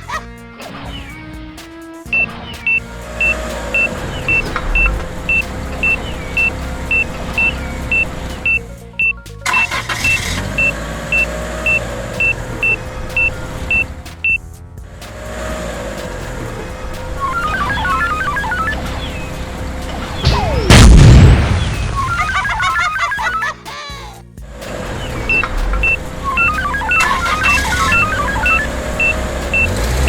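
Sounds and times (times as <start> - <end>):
short high beeps: 2.1 - 14.4, 17.2 - 20.7, 22.0 - 23.5, 25.3 - 29.8
engine noise: 2.1 - 23.4, 24.5 - 30.0.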